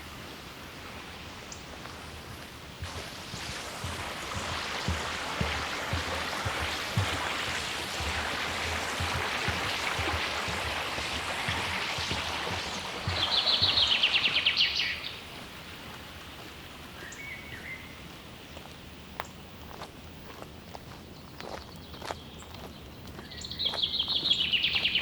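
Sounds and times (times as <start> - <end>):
flowing river water: 0.0 - 19.0
footfalls on forest trail: 1.3 - 25.0
bird singing rapid trill: 13.0 - 15.2, 23.2 - 25.0.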